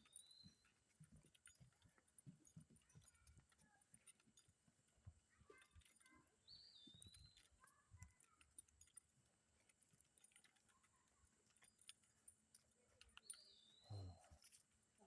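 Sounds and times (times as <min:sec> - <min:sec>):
faint birdsong whistles: 0:00.0 - 0:00.7, 0:06.4 - 0:07.5, 0:13.2 - 0:14.4.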